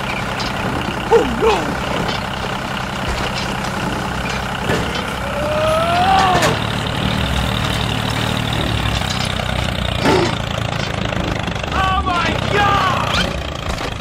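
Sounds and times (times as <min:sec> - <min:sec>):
tractor engine running: 0:00.0 - 0:14.0
voice-like cry: 0:01.1 - 0:01.8, 0:05.2 - 0:06.6, 0:11.8 - 0:13.2.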